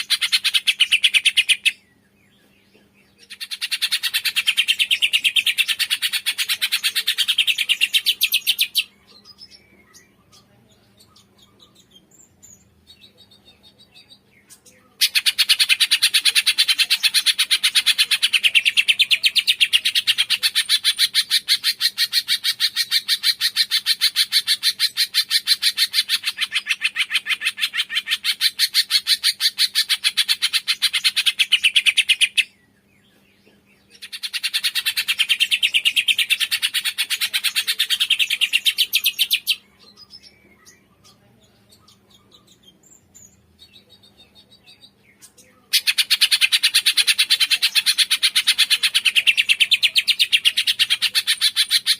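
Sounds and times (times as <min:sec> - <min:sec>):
songbird chattering rapid high notes: 0:00.0 - 0:01.8, 0:03.2 - 0:08.9, 0:15.0 - 0:32.5, 0:33.9 - 0:41.2, 0:43.4 - 0:51.9.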